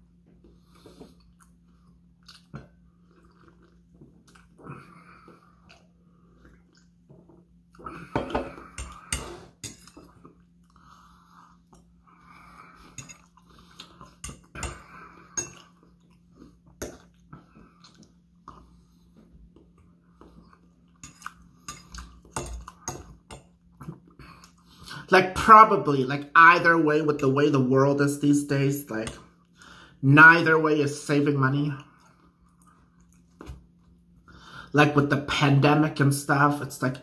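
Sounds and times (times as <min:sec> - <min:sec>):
person chewing food: 0:00.1 - 0:25.0, 0:31.9 - 0:34.3.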